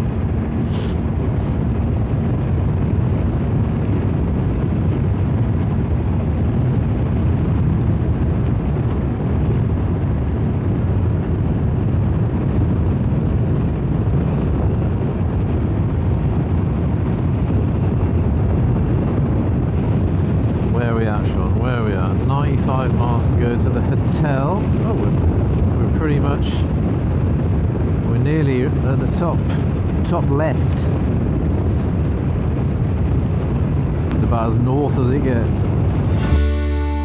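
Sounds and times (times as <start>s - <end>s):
wind rushing on microphone: 0.0s - 37.0s
motorcycle engine drone: 35.6s - 37.0s.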